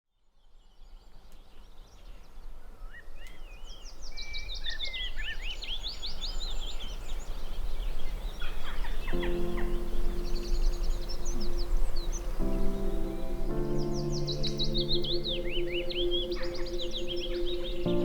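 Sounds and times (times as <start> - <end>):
bird whistling song: 8.0 - 18.0.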